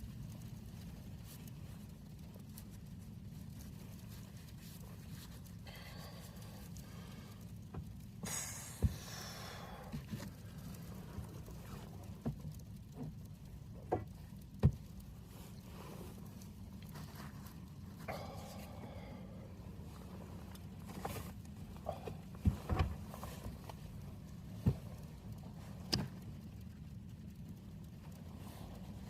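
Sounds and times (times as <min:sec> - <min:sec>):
low steady hum: 0:00.0 - 0:29.0
handling knocks and clicks: 0:09.9 - 0:15.2, 0:20.4 - 0:28.2.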